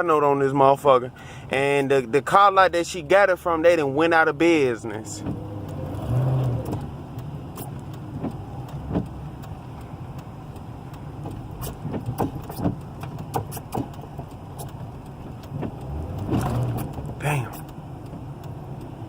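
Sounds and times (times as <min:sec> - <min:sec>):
car engine and road rumble: 0:00.0 - 0:19.0
sharp clicks and knocks: 0:05.2 - 0:19.0.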